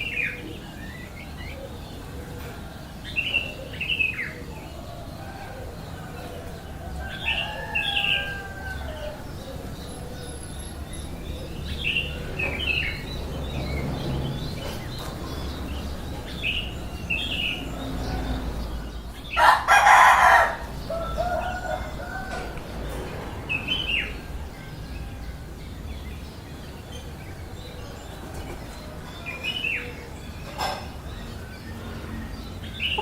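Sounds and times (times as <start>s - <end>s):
rooster crowing: 4.8s - 10.2s, 19.3s - 22.6s.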